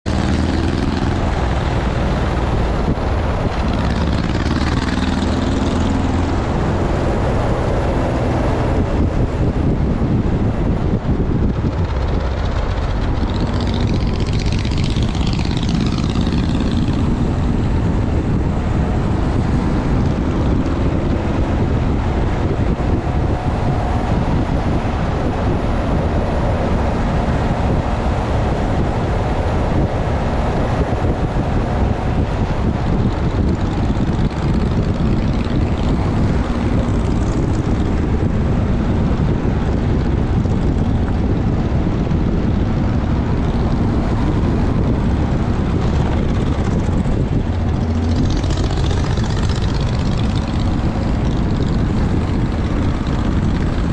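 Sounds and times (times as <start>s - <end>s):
motorcycle engine drone: 0.0s - 53.9s
wind rumble on microphone: 0.0s - 53.9s.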